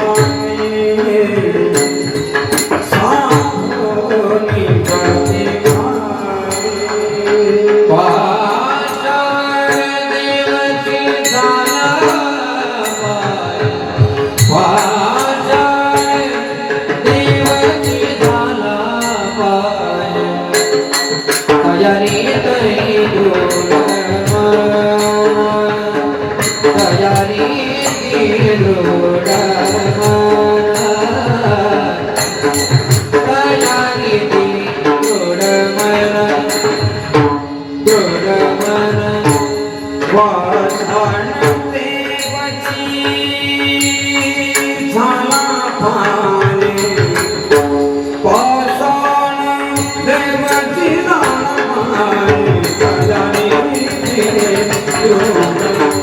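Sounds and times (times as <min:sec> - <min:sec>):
devotional singing: 0:00.0 - 0:56.0
hand drum playing: 0:13.0 - 0:56.0.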